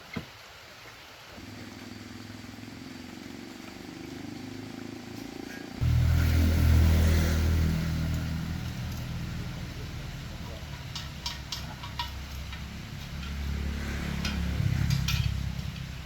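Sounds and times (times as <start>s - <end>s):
motor vehicle engine running: 1.4s - 16.0s.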